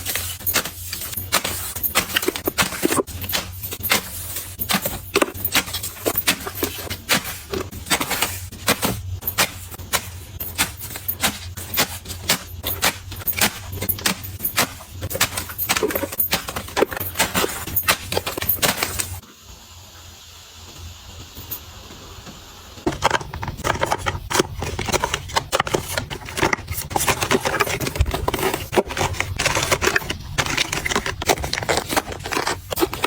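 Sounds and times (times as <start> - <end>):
small hard objects clicking and clinking: 0.0 - 19.2.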